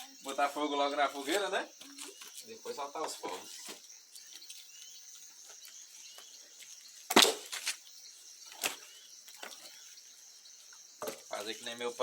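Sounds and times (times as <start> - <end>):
wooden knocks of firewood: 11.0 - 11.4.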